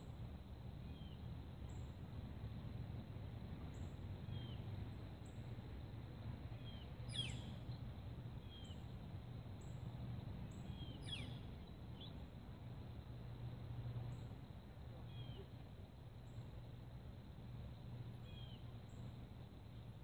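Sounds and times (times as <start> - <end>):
low background rumble: 0.0 - 20.0
small bird chirps: 6.6 - 8.9, 10.5 - 12.2, 15.0 - 15.6, 18.2 - 19.2.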